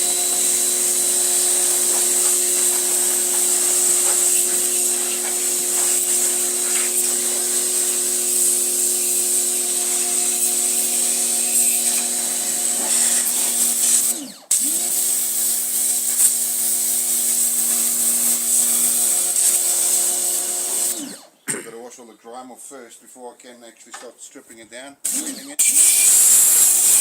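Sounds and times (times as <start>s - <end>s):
water jet hissing: 0.0s - 12.0s
pressure washer motor humming: 0.0s - 21.2s, 25.1s - 27.0s.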